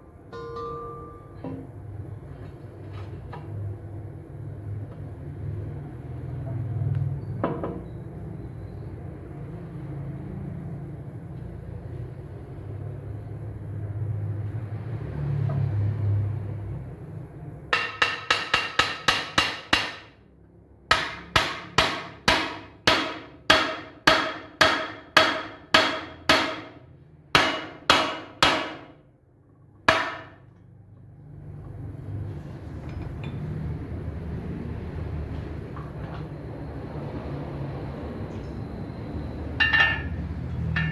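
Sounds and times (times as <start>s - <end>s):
hammer striking steel rim: 0.3s - 1.7s, 17.8s - 20.2s, 20.9s - 26.8s, 27.4s - 29.0s, 39.6s - 40.9s.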